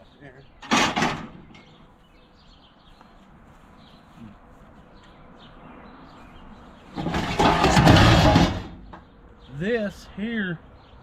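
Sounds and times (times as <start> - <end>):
metal parts scraping and rattling: 7.0 - 8.9.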